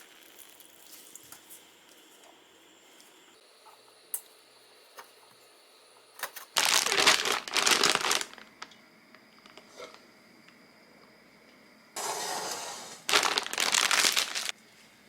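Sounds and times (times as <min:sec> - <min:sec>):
plastic crinkling rustle: 0:00.0 - 0:02.2, 0:06.2 - 0:08.7, 0:12.3 - 0:14.6.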